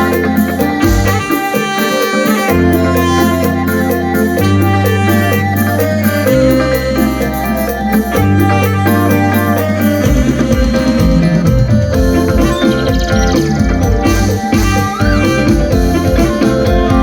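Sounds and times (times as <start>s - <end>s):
bass and keyboard chords: 0.0s - 17.0s
layered melody lines: 0.0s - 17.0s
low drum beat: 10.0s - 17.0s.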